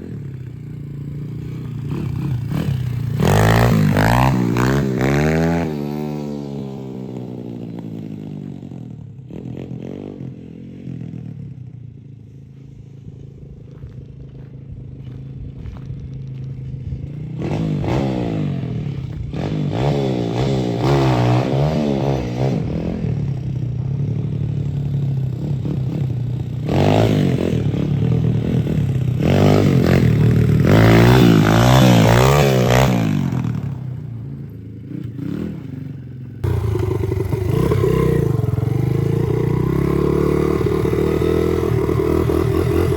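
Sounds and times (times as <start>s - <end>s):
small motorbike engine revving: 0.0s - 7.7s, 25.4s - 33.8s, 34.9s - 42.9s.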